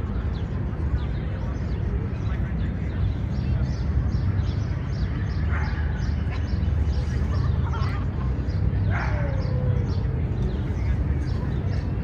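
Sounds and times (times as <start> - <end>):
distant traffic rumble: 0.0 - 12.0
small birds chirping: 0.0 - 12.0.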